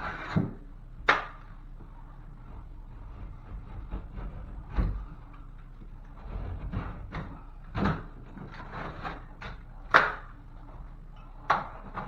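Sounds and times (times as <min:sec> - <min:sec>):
knife cutting drywall: 0:00.0 - 0:01.5, 0:02.5 - 0:10.8
sharp crack: 0:01.1 - 0:01.5, 0:09.9 - 0:10.4.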